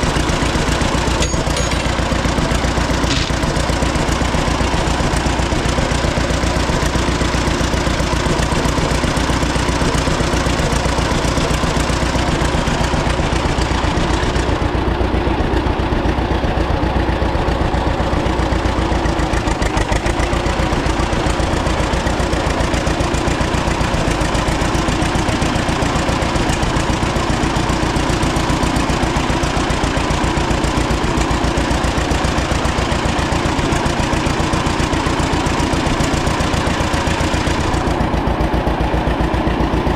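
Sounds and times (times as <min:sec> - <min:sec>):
tractor engine idling: 0:00.0 - 0:39.9.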